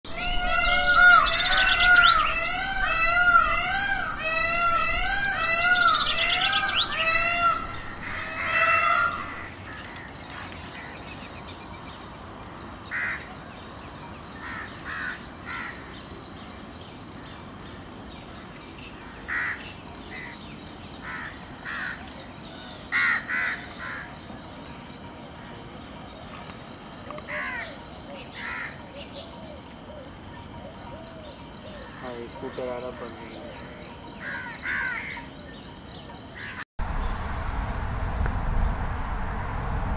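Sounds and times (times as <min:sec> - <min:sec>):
bird calling clear notes: 0:00.1 - 0:11.3.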